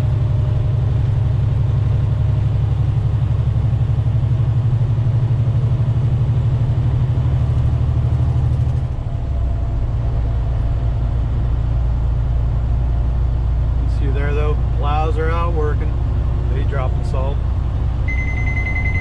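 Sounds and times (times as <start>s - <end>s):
truck diesel engine droning: 0.0s - 19.0s.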